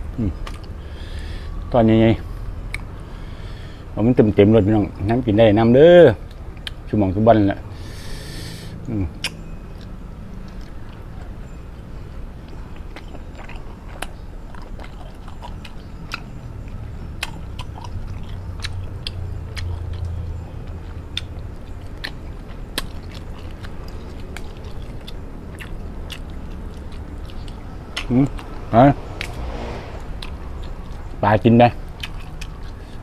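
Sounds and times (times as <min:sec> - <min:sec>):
low steady hum: 0:00.0 - 0:33.0
person chewing food: 0:06.2 - 0:06.8, 0:07.9 - 0:31.2, 0:31.8 - 0:33.0
mouth clicks: 0:08.2 - 0:09.9.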